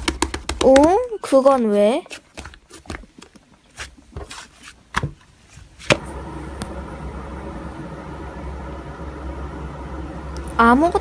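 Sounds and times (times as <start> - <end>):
steady low hum: 6.0 - 11.0.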